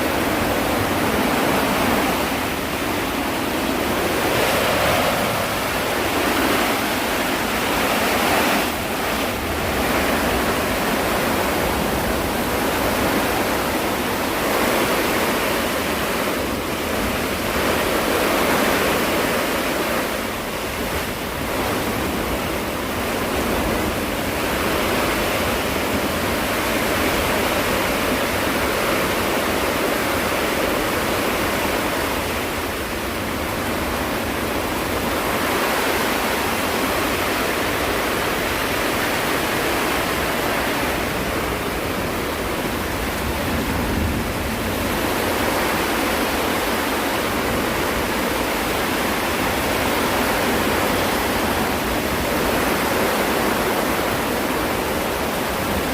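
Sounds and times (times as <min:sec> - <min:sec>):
strong wind: 0:00.0 - 0:55.9.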